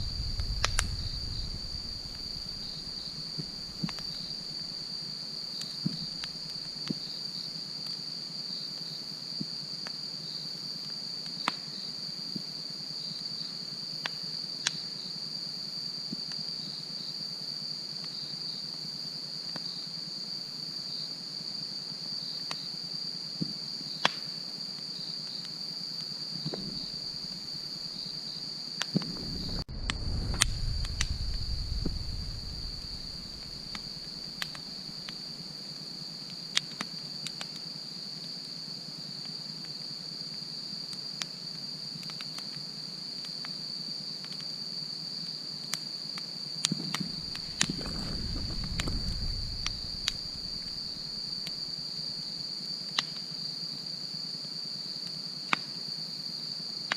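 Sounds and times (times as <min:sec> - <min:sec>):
low rumble: 0:00.0 - 0:03.8, 0:29.0 - 0:34.1, 0:47.0 - 0:51.3
campfire crackling: 0:00.0 - 0:04.6, 0:28.9 - 0:35.4, 0:46.6 - 0:52.2
crickets trilling: 0:00.0 - 0:56.9.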